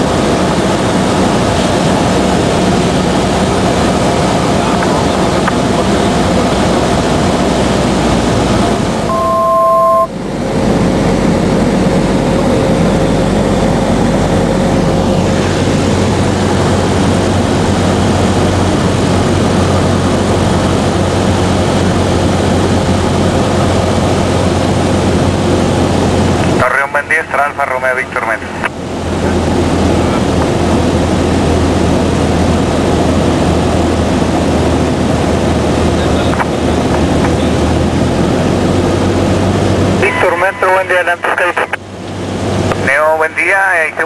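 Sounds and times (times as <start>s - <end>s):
airplane engine and propeller: 0.0s - 44.0s
two-note electronic tone: 9.1s - 10.2s.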